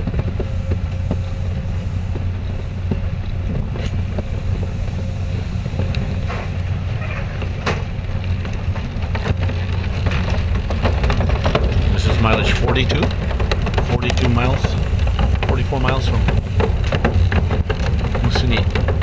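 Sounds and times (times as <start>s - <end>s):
train clacks and rattles: 0.0s - 19.0s
train rumble: 0.0s - 19.0s.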